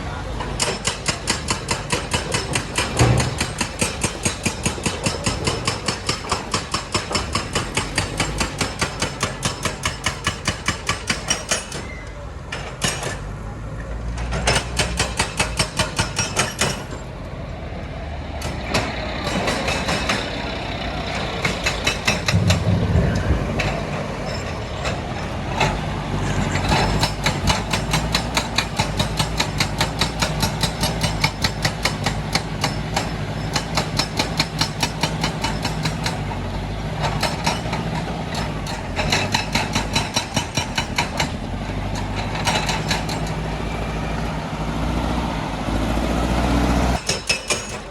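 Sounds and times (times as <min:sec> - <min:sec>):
diesel machinery droning: 0:16.8 - 0:47.0
rapid metallic clatter: 0:21.1 - 0:36.2.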